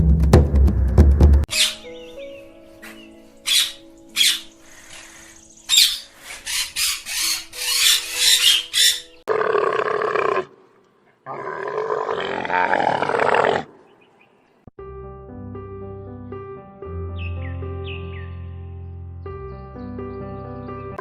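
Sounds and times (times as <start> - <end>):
harsh animal calls: 3.0 - 14.3.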